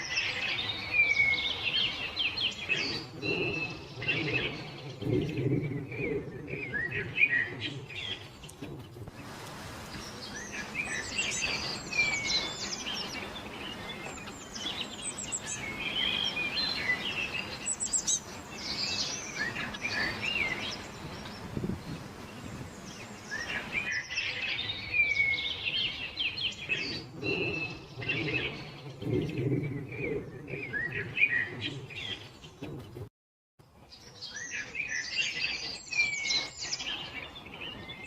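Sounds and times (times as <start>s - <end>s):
steady background hiss: 0.0s - 28.9s
songbirds chirping and singing: 0.0s - 33.1s, 33.7s - 38.0s.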